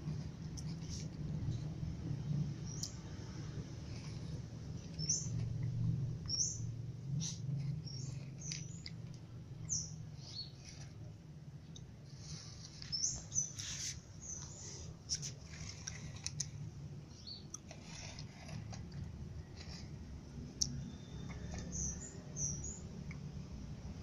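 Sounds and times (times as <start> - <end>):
low steady hum: 0.0 - 24.0
small bird chirping: 2.6 - 10.9, 12.2 - 16.3, 17.1 - 17.9, 20.6 - 23.2.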